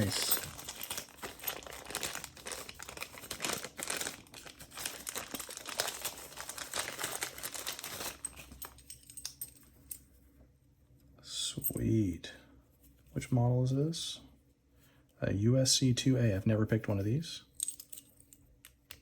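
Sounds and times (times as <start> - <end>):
packaging crinkling: 0.0 - 8.8.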